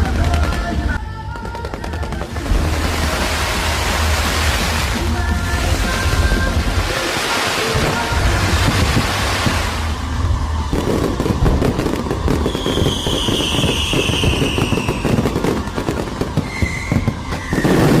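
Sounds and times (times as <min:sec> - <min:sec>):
fireworks popping and crackling: 0:00.0 - 0:18.0
firework whistle: 0:06.1 - 0:18.0.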